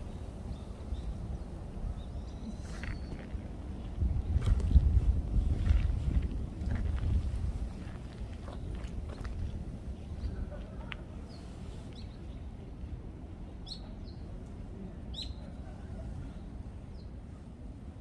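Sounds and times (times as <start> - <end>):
wind rumble on microphone: 0.0 - 13.1.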